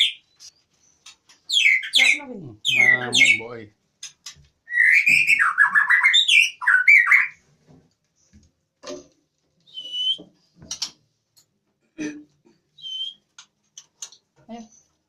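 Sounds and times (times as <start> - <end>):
bird squawking harsh calls: 1.5 - 3.5, 4.7 - 7.4.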